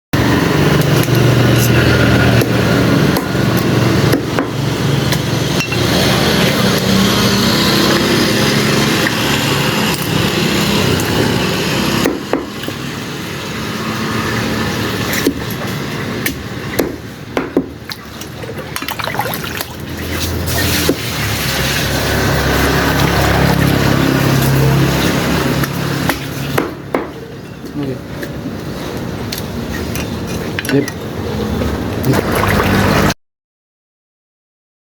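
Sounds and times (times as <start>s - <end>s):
cleaver chopping chicken: 0.7s - 5.3s, 9.0s - 11.3s, 11.9s - 12.8s.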